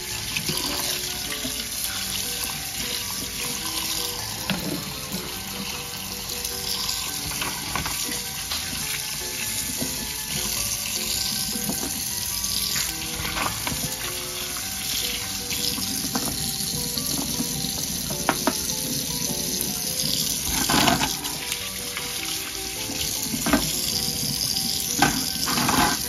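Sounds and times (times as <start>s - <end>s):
tap water splashing into a sink: 0.0s - 26.0s
toy cars clicking on a countertop: 23.2s - 26.0s.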